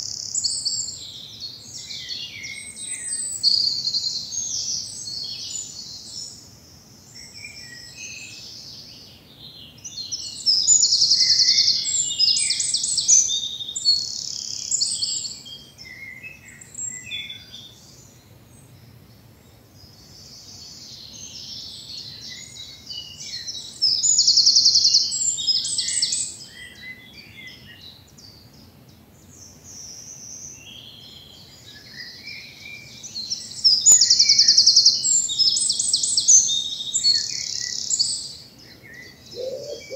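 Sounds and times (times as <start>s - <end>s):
faint bird chirps: 0.0s - 39.9s
songbird singing fast phrase: 29.5s - 39.9s.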